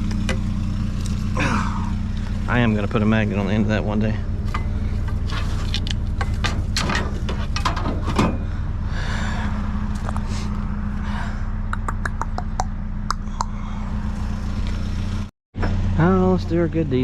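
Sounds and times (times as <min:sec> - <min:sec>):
vehicle interior hum: 0:00.0 - 0:17.0
rattles and clicks: 0:04.4 - 0:08.5.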